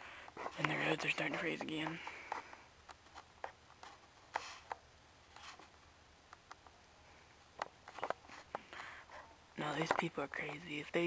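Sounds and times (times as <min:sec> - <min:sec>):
faint irregular clicks: 0:00.2 - 0:06.8, 0:07.5 - 0:10.7.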